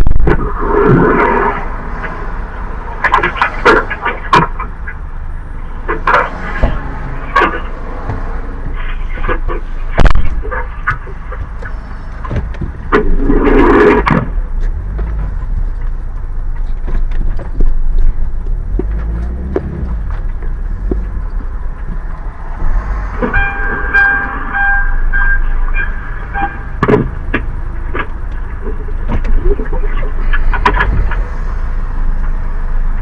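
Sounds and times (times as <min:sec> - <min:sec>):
car rolling on road: 0:00.0 - 0:33.0
pitched tone: 0:22.4 - 0:26.8.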